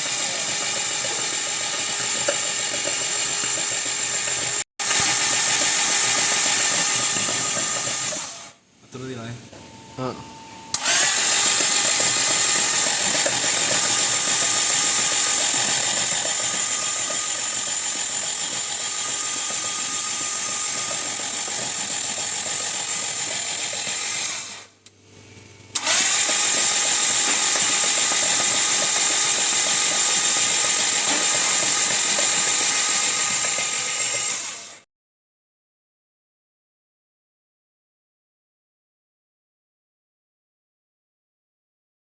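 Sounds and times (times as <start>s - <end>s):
motor-driven machine whining: 0.0s - 24.8s, 25.7s - 34.8s.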